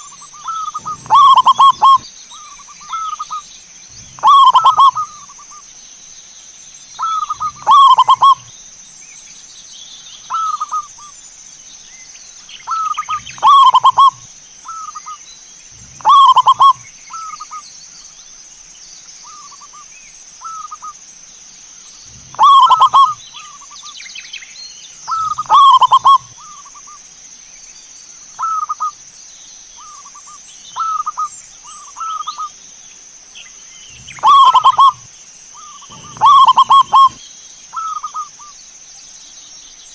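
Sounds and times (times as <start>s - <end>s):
dove cooing: 0.0s - 2.0s, 2.9s - 5.3s, 7.0s - 8.5s, 12.7s - 15.2s, 15.8s - 17.6s, 22.1s - 23.5s, 25.1s - 26.6s, 33.9s - 37.2s.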